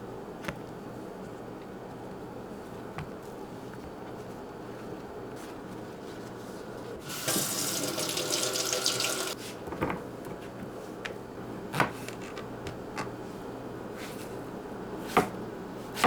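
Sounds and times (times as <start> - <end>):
kitchen tap running: 7.0 - 9.4.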